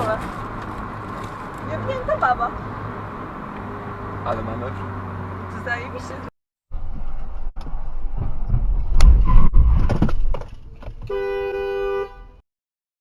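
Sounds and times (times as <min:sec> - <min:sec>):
car interior road noise: 0:00.0 - 0:12.1
car horn blaring: 0:11.0 - 0:12.4.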